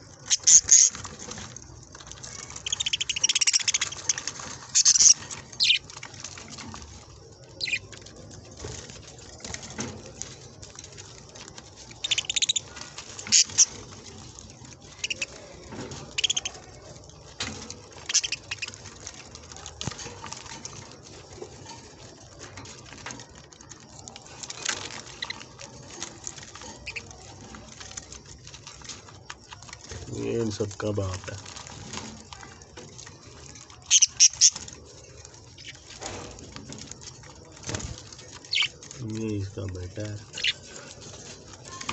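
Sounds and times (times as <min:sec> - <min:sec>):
scrabbling: 0:00.0 - 0:41.9
budgerigars chirping and chattering: 0:00.2 - 0:01.4, 0:02.4 - 0:07.9, 0:11.9 - 0:16.9, 0:18.0 - 0:19.2, 0:24.5 - 0:25.6, 0:26.5 - 0:27.4, 0:33.8 - 0:36.7, 0:37.7 - 0:41.9.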